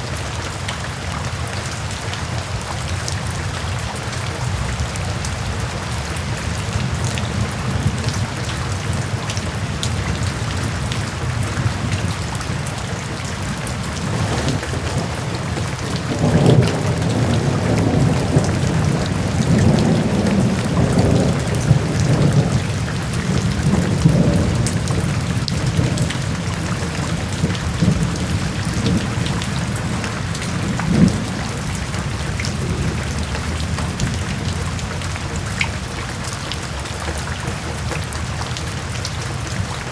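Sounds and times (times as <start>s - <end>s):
steady rain hissing: 0.0s - 39.9s
thunder rumbling: 6.9s - 35.4s.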